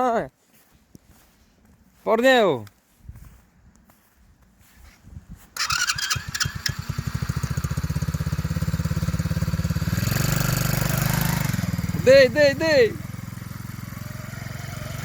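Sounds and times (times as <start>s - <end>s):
electric starter cranking: 5.6s - 11.7s
small engine puttering: 5.6s - 15.0s.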